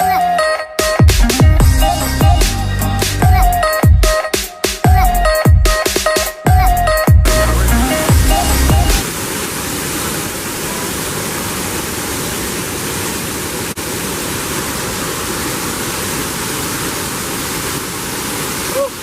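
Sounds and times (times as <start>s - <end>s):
electronic music: 0.0s - 9.0s
waterfall rushing: 7.3s - 19.0s.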